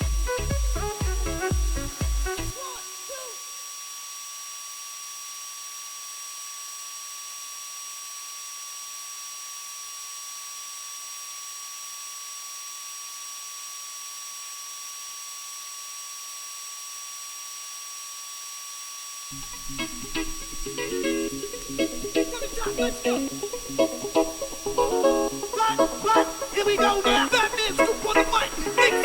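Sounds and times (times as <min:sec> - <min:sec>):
high-pitched motor whine: 0:00.0 - 0:29.0
airy fan hiss: 0:19.3 - 0:29.0.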